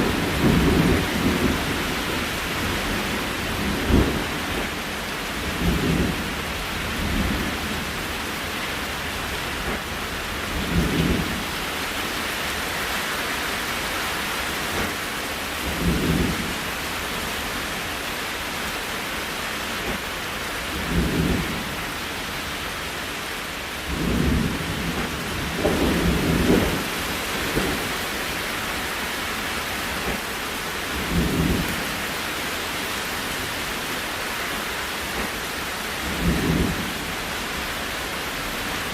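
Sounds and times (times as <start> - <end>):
rain hiss: 0.0 - 38.9.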